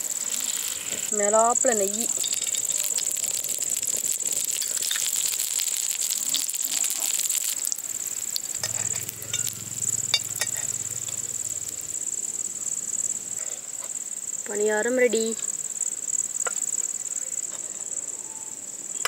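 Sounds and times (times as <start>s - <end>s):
ghee sizzling and crackling: 0.0s - 18.0s
insects chirring: 0.0s - 19.0s
utensil clinks: 8.6s - 11.3s
low hum: 8.6s - 13.4s.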